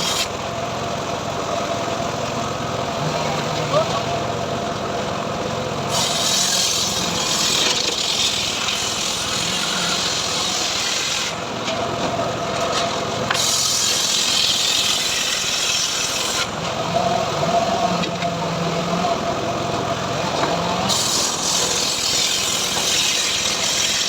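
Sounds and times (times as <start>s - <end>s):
saw blade cutting wood: 0.0s - 0.3s, 5.9s - 11.4s, 13.3s - 16.6s, 20.8s - 24.0s
engine humming: 0.0s - 6.1s.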